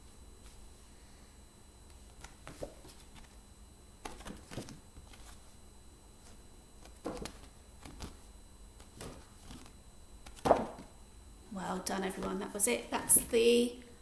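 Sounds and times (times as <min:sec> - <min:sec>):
paper flashcards rustling: 0:04.0 - 0:05.5.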